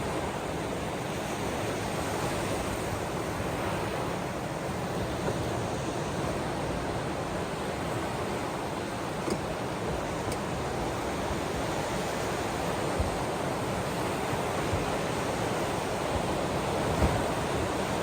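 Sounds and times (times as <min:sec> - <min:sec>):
ocean waves washing on shore: 0:00.0 - 0:18.0.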